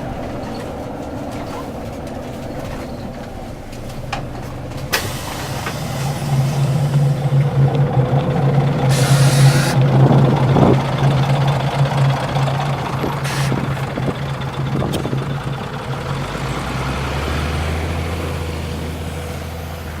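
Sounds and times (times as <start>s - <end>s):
bus diesel engine running: 0.0s - 20.0s
air hissing: 4.9s - 7.6s, 8.8s - 9.9s, 13.2s - 13.8s.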